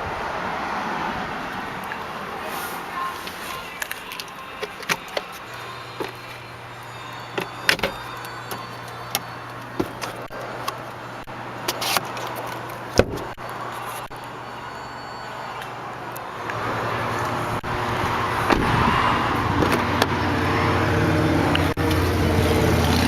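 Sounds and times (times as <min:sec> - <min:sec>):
car doors and controls clicking: 0:03.2 - 0:05.4.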